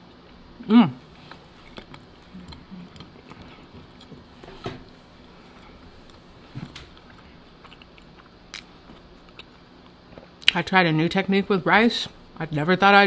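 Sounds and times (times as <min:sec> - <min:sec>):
quiet chewing with mouth clicks: 0:01.1 - 0:10.6.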